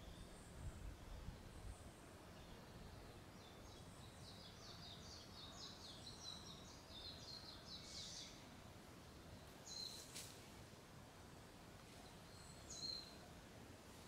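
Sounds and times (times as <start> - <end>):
small bird singing: 0.0 - 8.4, 9.4 - 10.2, 12.0 - 13.3
forest background hiss: 0.0 - 14.0.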